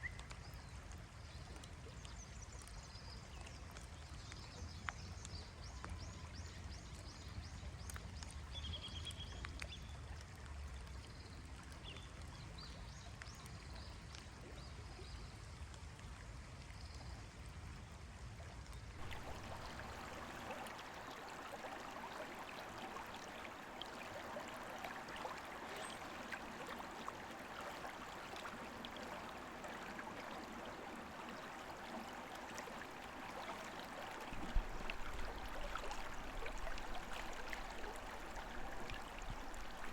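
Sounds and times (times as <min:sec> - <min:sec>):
stream flowing over rocks: 0:19.0 - 0:39.9.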